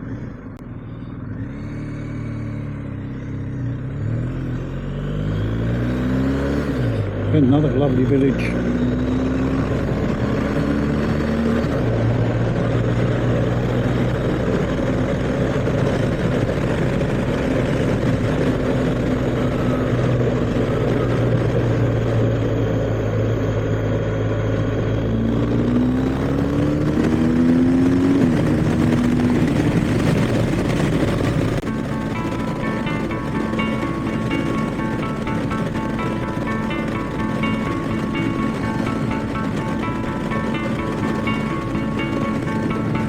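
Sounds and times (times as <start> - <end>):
motorcycle engine running: 0.0 - 43.0
rushing noise: 24.8 - 43.0.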